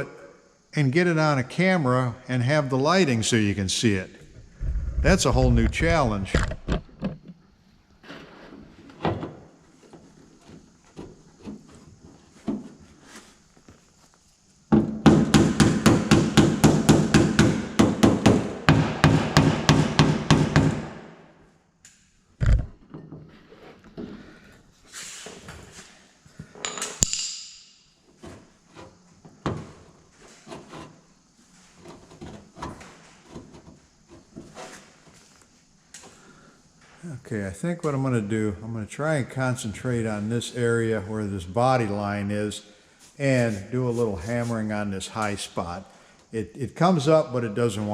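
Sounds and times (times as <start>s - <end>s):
knocks on metal: 14.7s - 21.0s.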